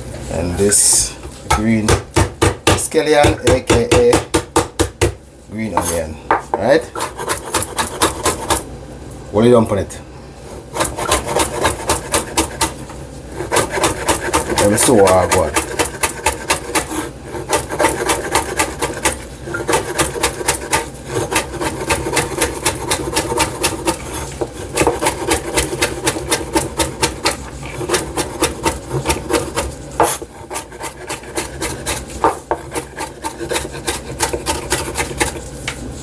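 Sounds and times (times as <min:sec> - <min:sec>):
knife chopping on cutting board: 0:01.5 - 0:05.2, 0:05.8 - 0:08.6, 0:10.8 - 0:12.8, 0:13.4 - 0:35.4.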